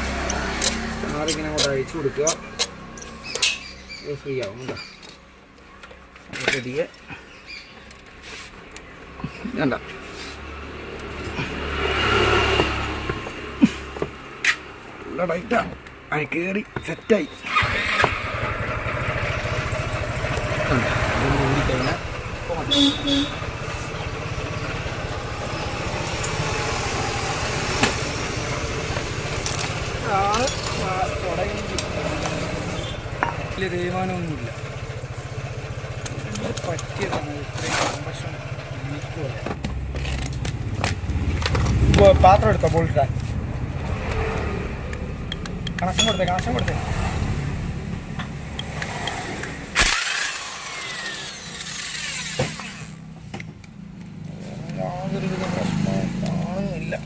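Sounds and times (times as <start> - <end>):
power tool burst: 17.5 - 18.6, 49.7 - 53.0
small engine idling: 17.5 - 39.4, 48.4 - 54.3
motor whine spinning down: 49.8 - 53.0.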